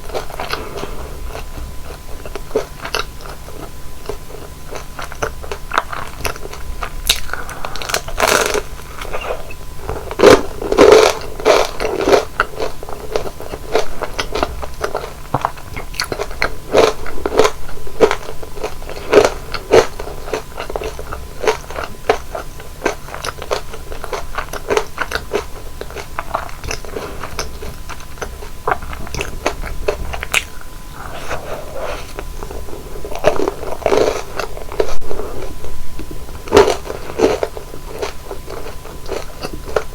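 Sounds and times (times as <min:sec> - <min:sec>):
crunching bites and chewing: 0:00.0 - 0:39.9.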